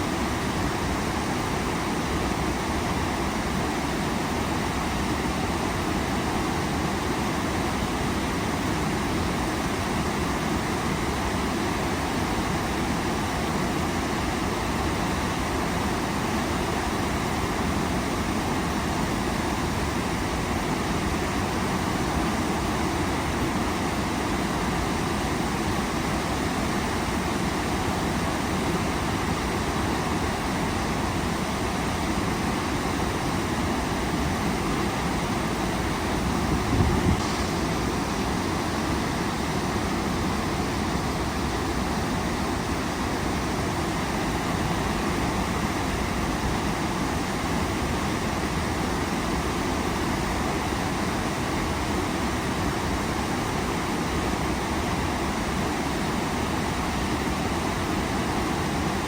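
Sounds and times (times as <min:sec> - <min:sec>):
waterfall roaring: 0:13.5 - 0:59.0.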